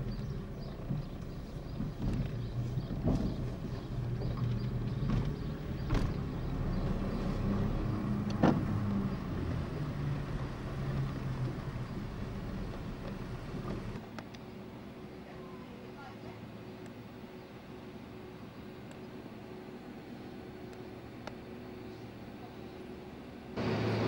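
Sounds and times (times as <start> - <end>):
car engine humming: 0.0 - 14.0, 23.6 - 24.0.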